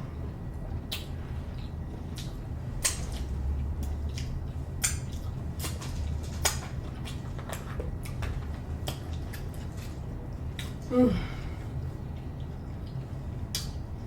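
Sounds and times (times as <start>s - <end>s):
low steady hum: 0.0s - 14.0s
wet chewing and mouth smacks: 0.8s - 10.8s.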